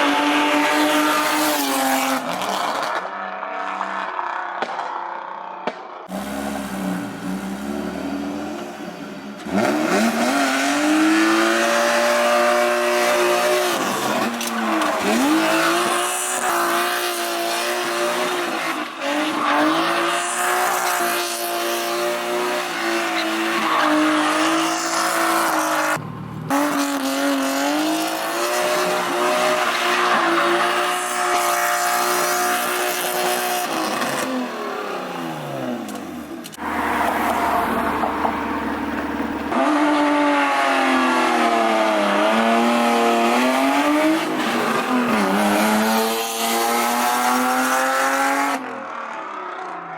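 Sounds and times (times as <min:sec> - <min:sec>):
car engine at high revs: 0:00.0 - 0:04.9, 0:05.6 - 0:49.9.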